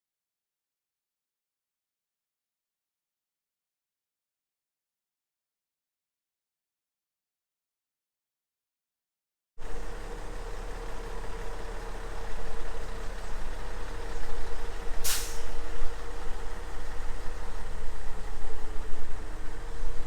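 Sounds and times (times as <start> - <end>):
truck diesel engine running: 9.6 - 20.0
air hiss: 15.0 - 15.6.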